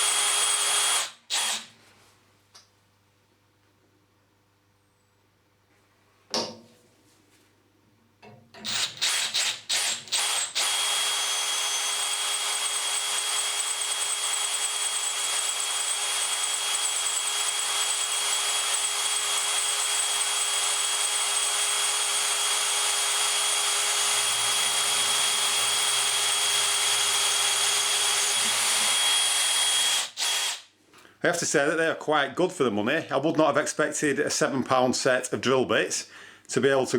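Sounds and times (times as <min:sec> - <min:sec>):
power drill cutting steel: 0:00.0 - 0:01.7, 0:08.6 - 0:30.7.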